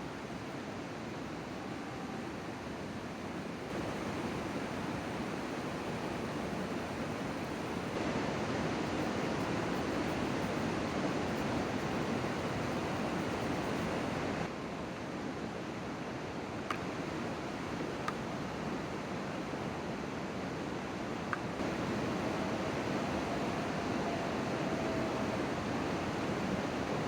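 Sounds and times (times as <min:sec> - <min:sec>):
steady outdoor rushing noise: 0:00.0 - 0:14.6, 0:20.8 - 0:27.0.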